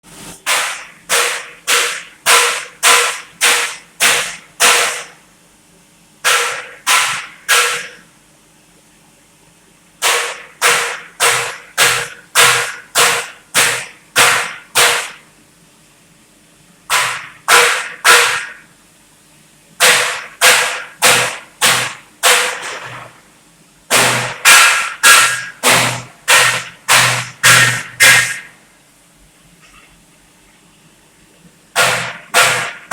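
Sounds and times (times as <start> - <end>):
hammer blows on metal: 6.2 - 8.0, 16.9 - 18.6, 23.9 - 28.5, 31.8 - 32.9.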